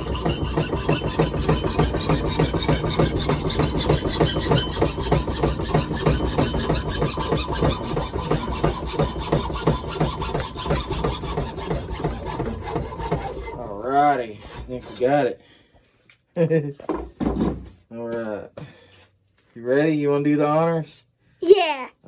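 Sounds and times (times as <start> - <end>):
hand saw cutting wood: 0.0 - 15.3.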